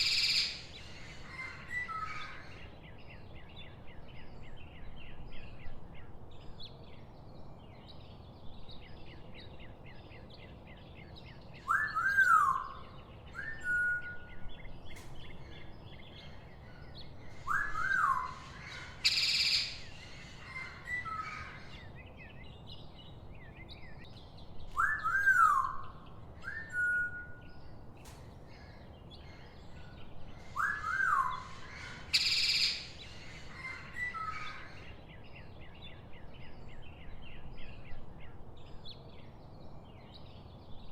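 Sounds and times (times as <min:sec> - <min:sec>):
harsh bird calls: 0:00.0 - 0:03.8, 0:11.4 - 0:36.7
many small bird chirps: 0:00.0 - 0:40.9
bird whistles: 0:11.6 - 0:14.4, 0:17.4 - 0:18.4, 0:19.0 - 0:19.8, 0:24.7 - 0:27.4, 0:30.6 - 0:33.0.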